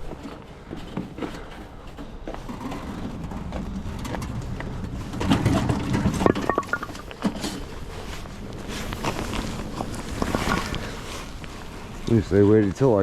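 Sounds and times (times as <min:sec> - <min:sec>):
firewood knocking and clattering: 0:05.1 - 0:07.6.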